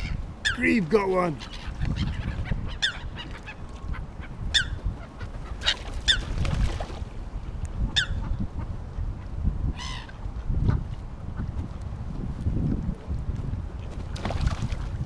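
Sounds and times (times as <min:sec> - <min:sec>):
gulls calling: 0:00.0 - 0:06.5.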